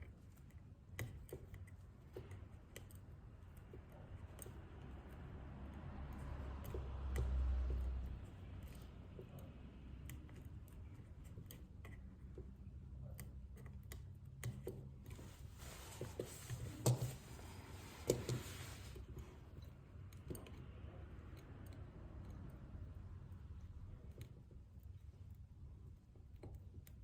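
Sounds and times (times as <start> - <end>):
small tools clicking and tapping: 0.0 - 15.3, 18.0 - 22.6.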